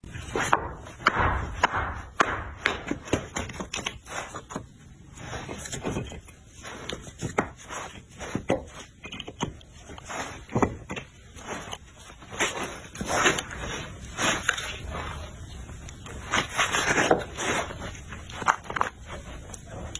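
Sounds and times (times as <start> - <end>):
scraping: 0.0 - 19.9
knocking and chopping impacts: 0.1 - 3.9.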